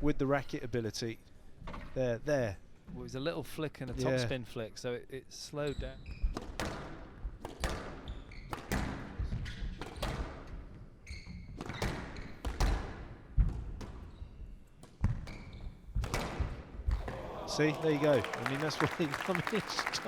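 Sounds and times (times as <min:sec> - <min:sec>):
shoes squeaking on court floor: 0:08.0 - 0:10.2, 0:11.0 - 0:12.4, 0:13.9 - 0:16.0.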